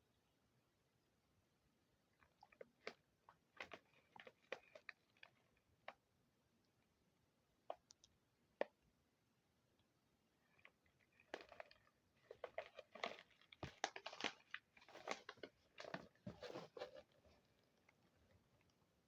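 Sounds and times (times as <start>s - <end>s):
pretzel snack crunching: 10.5s - 17.9s.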